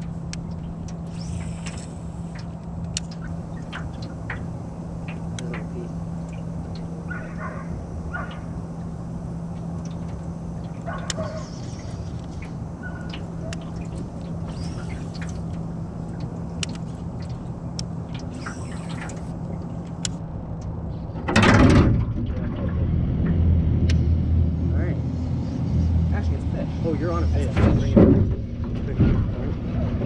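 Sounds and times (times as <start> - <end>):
small boat motor humming: 0.0 - 30.0
scattered clicks: 9.5 - 20.8.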